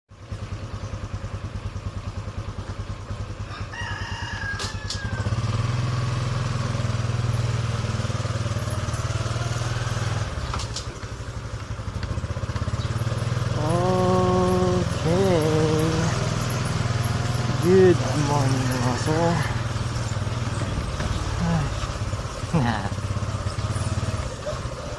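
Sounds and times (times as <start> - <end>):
motorcycle engine running: 0.1 - 24.9
rooster crowing: 3.4 - 5.6.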